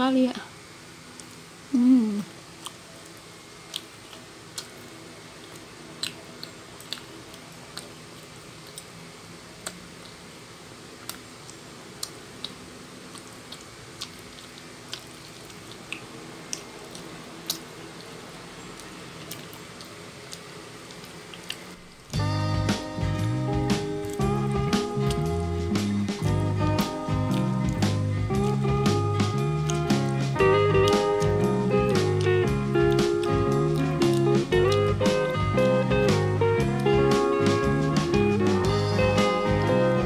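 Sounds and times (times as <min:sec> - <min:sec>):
short falling vocal sound: 0:01.7 - 0:02.3
chewing soft noodles: 0:02.2 - 0:10.3, 0:10.9 - 0:22.1
wet mouth clicks and smacks: 0:11.0 - 0:18.1.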